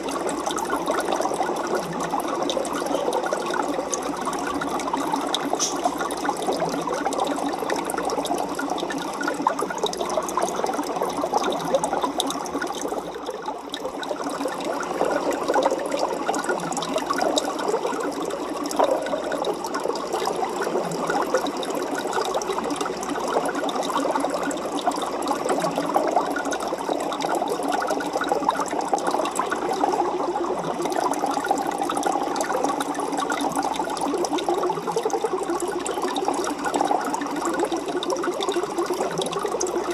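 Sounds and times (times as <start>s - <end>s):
aquarium water bubbling: 0.0s - 39.9s.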